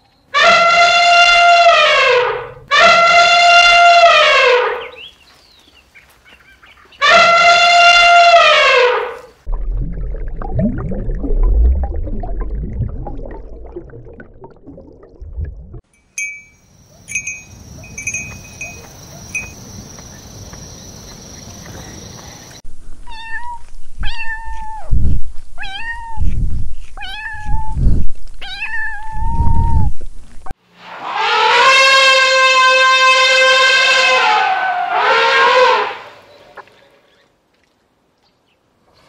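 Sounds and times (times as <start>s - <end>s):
low rumbling noise: 9.4s - 15.8s
faint high chirps: 16.0s - 19.7s
cat meowing: 23.1s - 24.9s, 25.6s - 26.2s, 27.0s - 27.8s, 28.4s - 29.7s.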